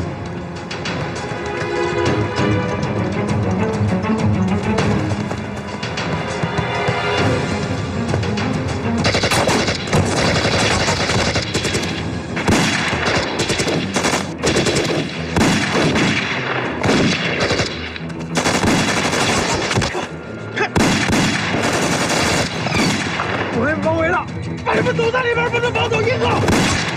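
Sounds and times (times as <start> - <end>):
dramatic background music: 0.0 - 26.9
gunshots in rapid bursts: 9.0 - 20.1, 20.8 - 23.5, 26.4 - 26.9.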